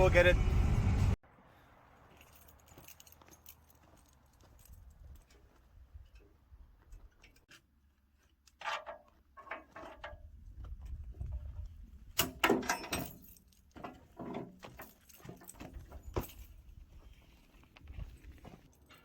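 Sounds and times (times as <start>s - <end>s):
low rumble: 0.0s - 1.2s
metallic clanks and rattles: 8.5s - 10.4s, 12.1s - 16.7s.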